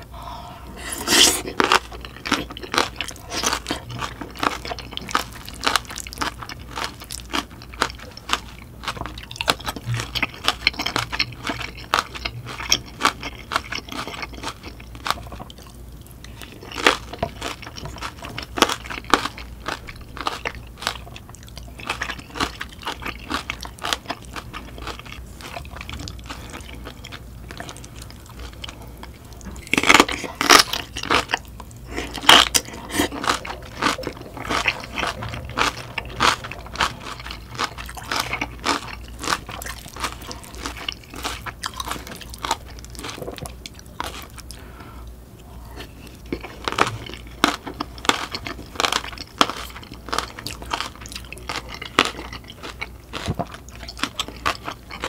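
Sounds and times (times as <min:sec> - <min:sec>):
person chewing crunchy food: 0:00.0 - 0:55.0.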